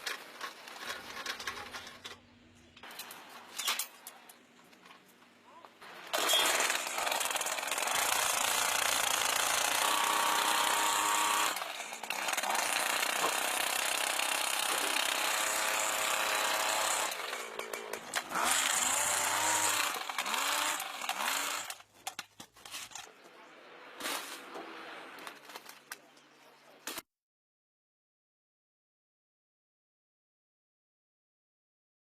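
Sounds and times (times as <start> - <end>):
jackhammer breaking road surface: 6.1 - 21.8.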